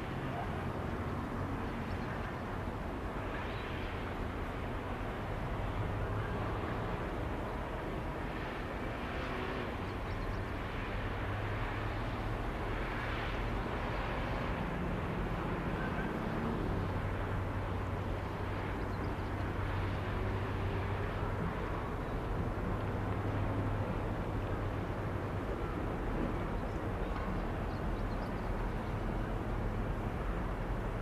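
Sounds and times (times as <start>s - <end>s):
distant train low rumble: 0.0s - 31.0s.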